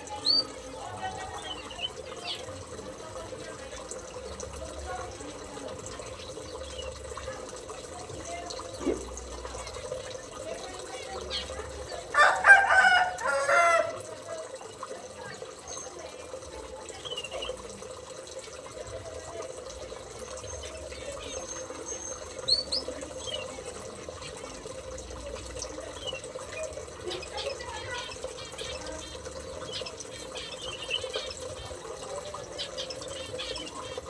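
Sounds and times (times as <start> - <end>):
rooster crowing: 12.1 - 14.1.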